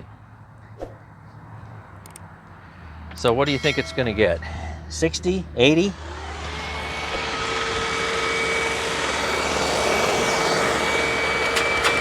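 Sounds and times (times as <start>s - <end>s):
vacuum cleaner motor running: 5.7s - 12.0s.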